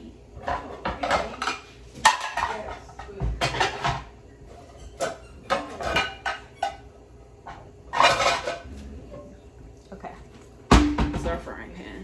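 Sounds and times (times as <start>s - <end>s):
pots and pans clattering: 0.0s - 9.4s, 10.7s - 12.0s.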